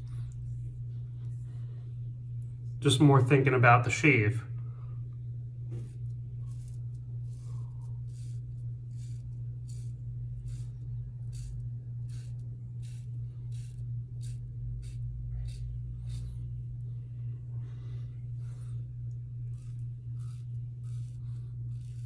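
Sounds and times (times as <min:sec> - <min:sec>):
low hum: 0:00.0 - 0:22.0
razor scraping stubble: 0:05.7 - 0:16.7, 0:19.3 - 0:22.0.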